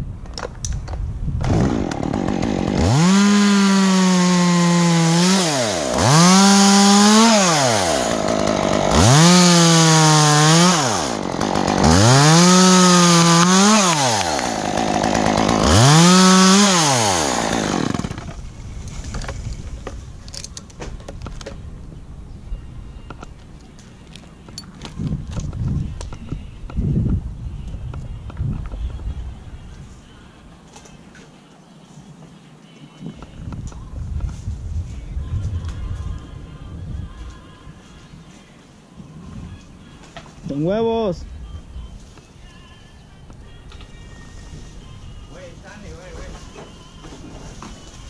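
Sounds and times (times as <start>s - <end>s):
chainsaw revving: 1.4s - 18.4s
chainsaw cutting wood: 1.4s - 19.6s
chainsaw idling: 1.5s - 18.5s.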